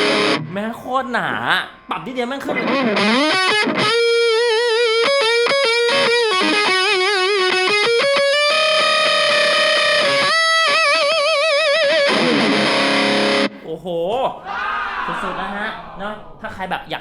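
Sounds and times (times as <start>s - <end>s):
distorted electric guitar lead: 0.0s - 0.9s, 1.7s - 13.6s.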